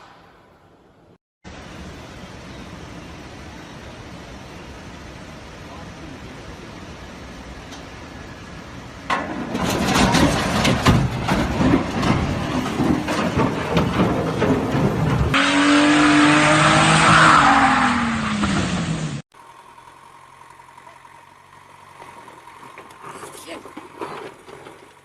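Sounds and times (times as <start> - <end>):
steady engine hum: 0.0 - 17.2, 17.9 - 25.0
dense clattering and knocking: 9.1 - 15.4, 22.0 - 25.0.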